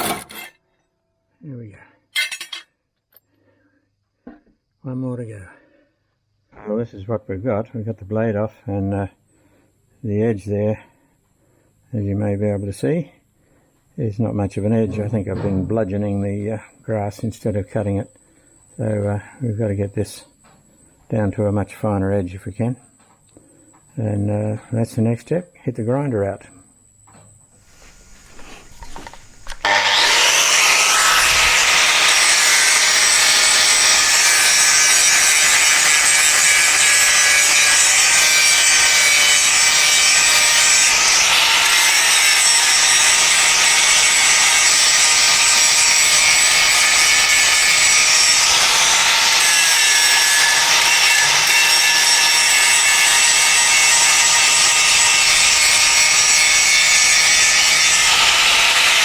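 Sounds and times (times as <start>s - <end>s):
power grinder grinding metal: 0.0s - 0.6s, 27.7s - 59.0s.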